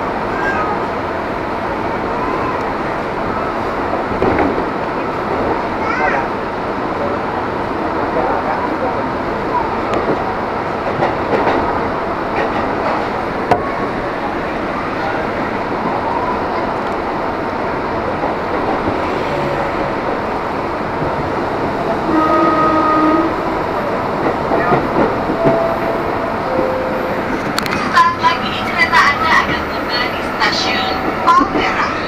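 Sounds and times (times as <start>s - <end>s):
train wheels rumbling on rail: 0.0s - 32.0s
brief pitched tone: 25.4s - 27.2s.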